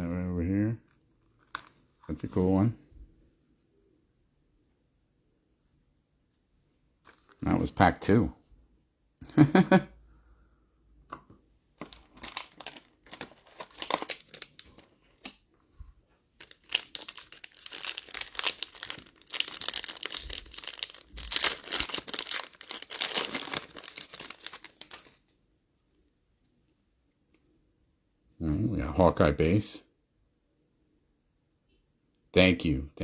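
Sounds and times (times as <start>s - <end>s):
wrapper rustling and tearing: 7.1s - 7.4s, 11.8s - 15.4s, 16.4s - 25.2s.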